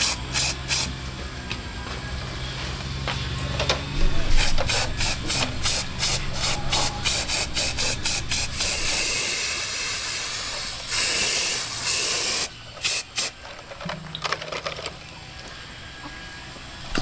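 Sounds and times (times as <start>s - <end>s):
spray-like hiss: 0.0s - 0.9s, 4.4s - 13.3s.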